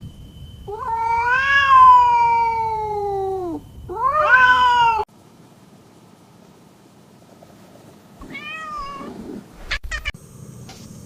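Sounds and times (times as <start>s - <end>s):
cat meowing: 0.7s - 5.1s, 8.2s - 10.2s.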